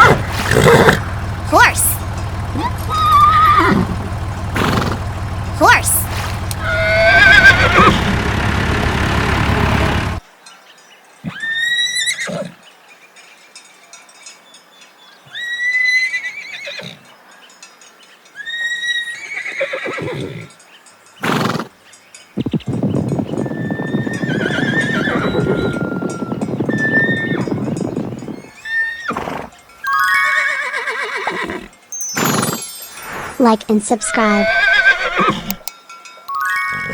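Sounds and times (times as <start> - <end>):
horse neighing: 0.0 - 8.2, 11.3 - 12.6, 15.3 - 17.0, 18.4 - 20.5, 21.2 - 21.7, 23.4 - 26.0, 26.6 - 27.8, 28.4 - 33.4, 34.0 - 35.7, 36.7 - 36.9.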